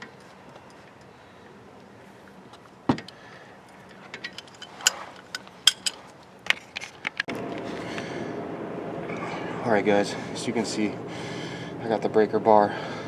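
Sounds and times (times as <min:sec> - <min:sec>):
steady hum: 0:00.0 - 0:13.0
hand tools clinking on metal: 0:03.7 - 0:06.1.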